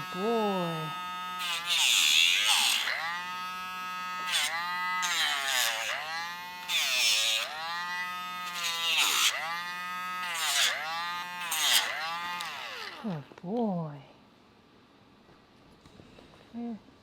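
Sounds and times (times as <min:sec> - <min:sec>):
electric nail grinder whining: 0:00.0 - 0:13.4.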